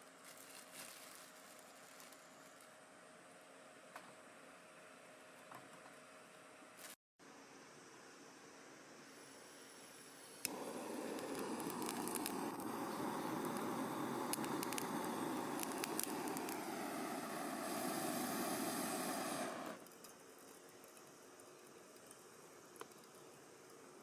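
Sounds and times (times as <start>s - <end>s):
wood fire hissing and crackling: 0.0s - 2.7s, 9.2s - 24.0s.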